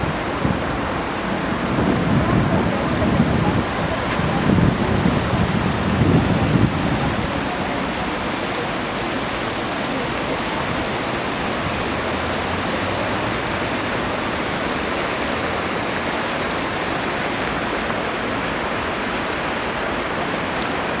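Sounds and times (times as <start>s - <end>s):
aircraft engine and airflow roar: 0.0s - 14.6s.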